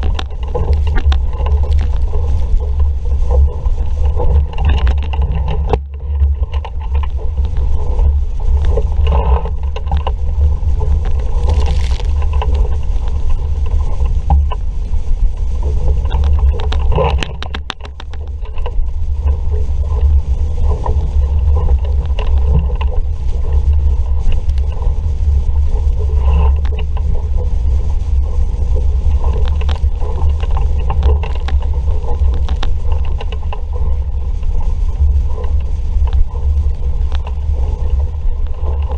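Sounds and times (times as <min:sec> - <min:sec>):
boat knocks and clicks: 0:00.0 - 0:14.7, 0:15.6 - 0:19.4
wind buffeting microphone: 0:00.0 - 0:38.9.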